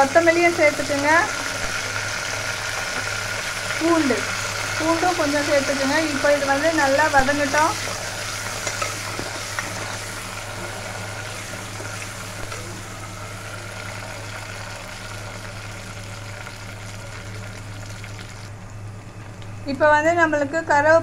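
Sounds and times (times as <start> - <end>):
leaves and garlic sizzling in oil: 0.0 - 18.5
low steady hum: 0.0 - 21.0.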